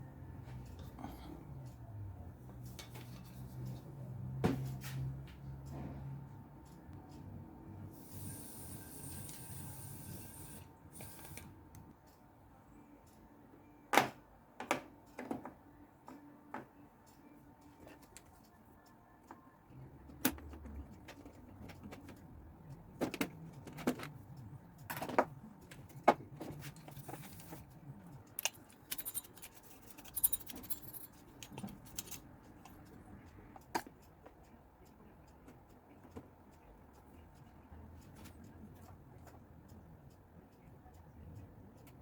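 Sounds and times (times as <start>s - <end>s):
small metal objects clicking: 28.2s - 33.0s
metallic jangle: 28.4s - 32.2s.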